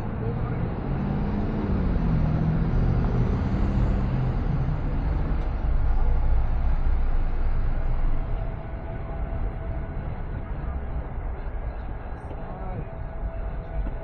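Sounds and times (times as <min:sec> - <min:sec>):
car road and engine rumble: 0:00.0 - 0:14.0
humming tone: 0:03.0 - 0:14.0.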